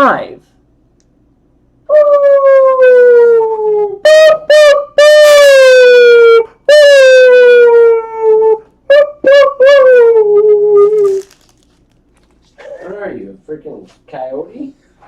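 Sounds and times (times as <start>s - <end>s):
person howling like a coyote: 1.9s - 11.3s.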